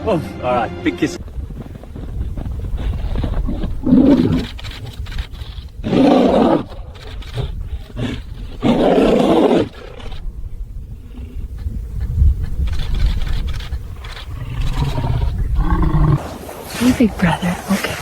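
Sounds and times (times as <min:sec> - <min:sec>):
large animal roaring: 0:08.0 - 0:10.1, 0:14.4 - 0:16.2.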